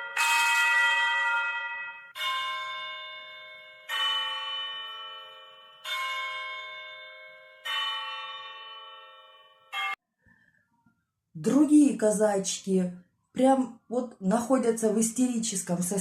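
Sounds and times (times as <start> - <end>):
bell ringing: 0.0 - 10.0.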